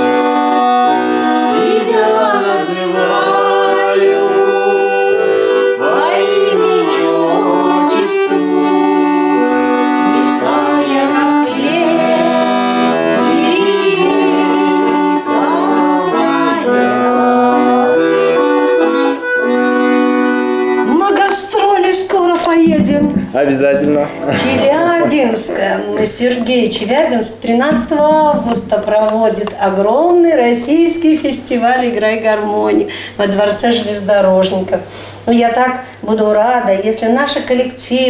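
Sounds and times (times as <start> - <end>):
button accordion playing folk tune: 0.0 - 29.6.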